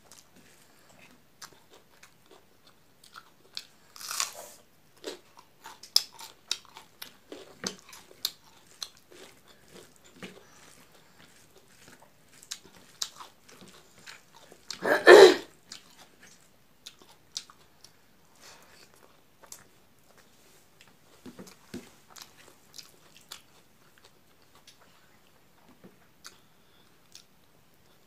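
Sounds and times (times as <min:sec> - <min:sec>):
crunchy bite: 0:04.0 - 0:04.4
wet chewing: 0:05.3 - 0:18.0, 0:18.8 - 0:25.0.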